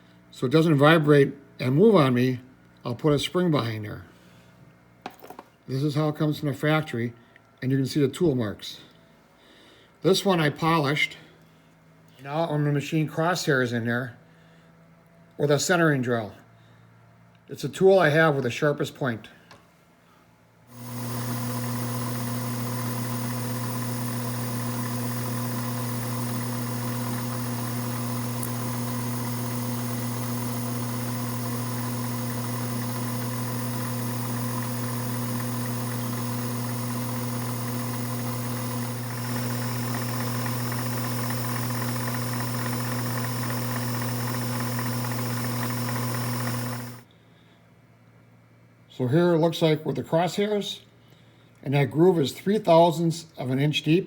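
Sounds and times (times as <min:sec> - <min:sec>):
electric motor humming: 0:20.7 - 0:47.0.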